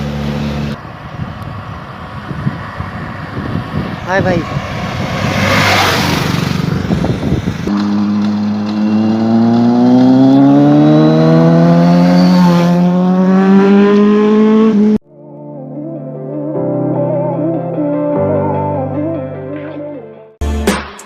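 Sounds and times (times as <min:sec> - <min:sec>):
passing traffic: 0:00.0 - 0:15.0
vehicle engine accelerating: 0:00.0 - 0:15.0
background music: 0:15.1 - 0:21.0.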